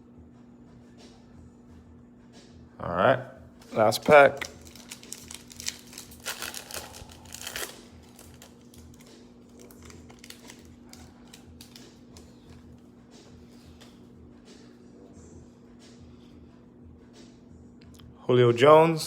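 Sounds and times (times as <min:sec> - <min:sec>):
plastic wrapper tearing and crinkling: 0:04.4 - 0:12.3.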